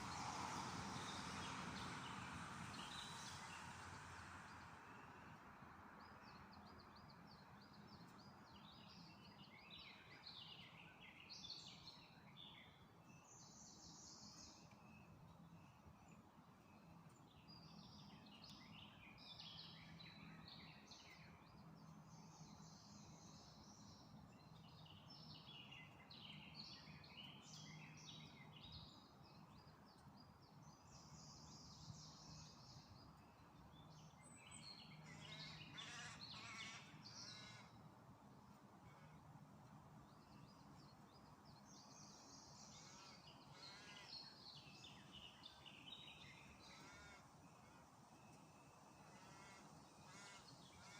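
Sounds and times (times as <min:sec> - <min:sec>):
songbirds chirping: 0:00.0 - 0:50.9.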